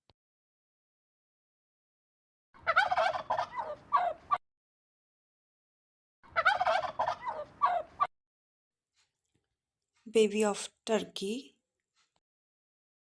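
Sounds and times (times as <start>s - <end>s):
turkey gobbling: 2.6s - 4.4s, 6.3s - 8.1s.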